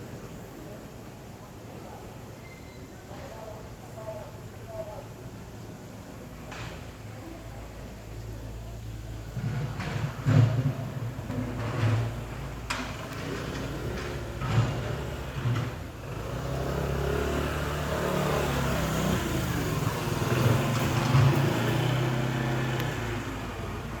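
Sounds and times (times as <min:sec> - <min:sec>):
engine humming: 0:08.9 - 0:24.0.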